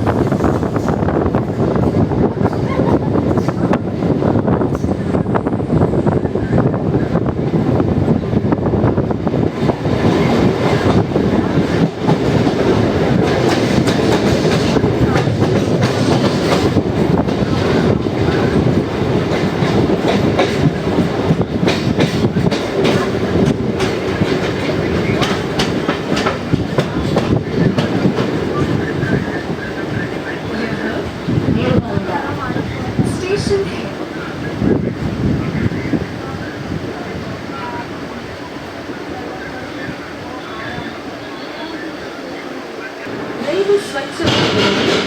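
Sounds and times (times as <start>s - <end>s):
train wheels rumbling: 0.0s - 45.0s
clickety-clack of rail joints: 9.5s - 30.1s, 43.5s - 45.0s.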